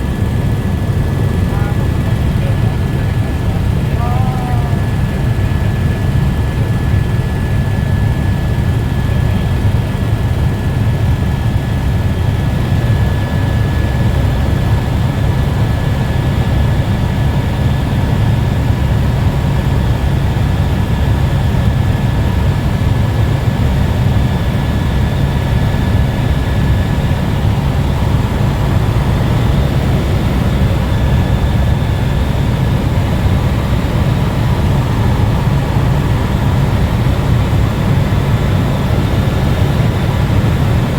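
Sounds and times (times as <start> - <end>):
helicopter rotor and engine rumble: 0.0 - 40.9.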